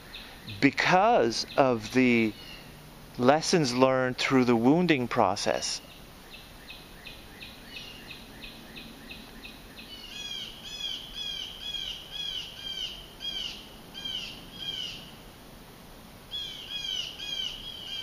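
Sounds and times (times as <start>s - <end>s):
bird singing repeated notes: 0.0s - 15.1s.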